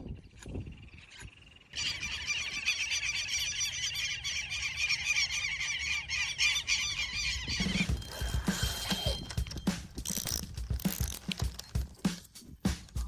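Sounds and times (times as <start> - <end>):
flock of birds squawking: 1.7 - 9.7.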